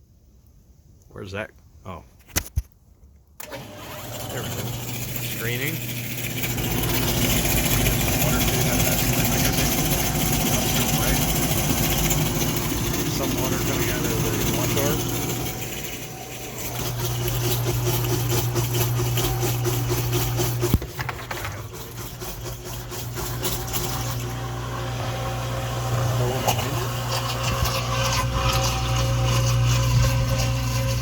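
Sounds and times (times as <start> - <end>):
dishwasher pump humming: 3.4 - 31.0.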